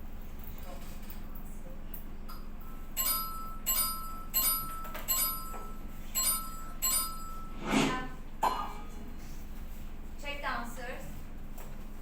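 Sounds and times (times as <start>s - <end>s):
ringing chime tones: 3.0s - 7.6s
brief loud sound: 7.5s - 8.2s.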